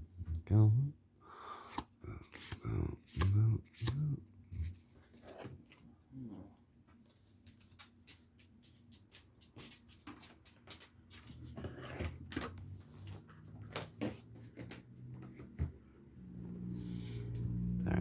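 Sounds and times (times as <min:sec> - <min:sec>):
cards being flipped through: 0:01.6 - 0:05.8.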